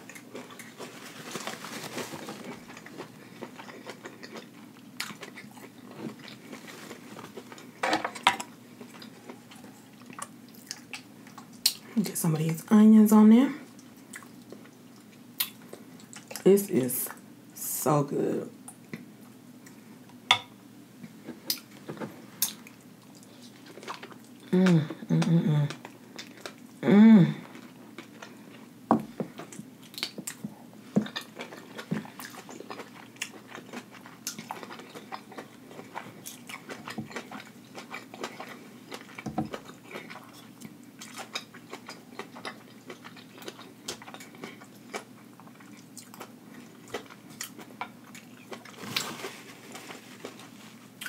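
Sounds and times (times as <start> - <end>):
wet chewing and lip smacks: 8.8 - 11.9, 13.7 - 16.5
person humming: 24.4 - 25.8, 26.8 - 27.5.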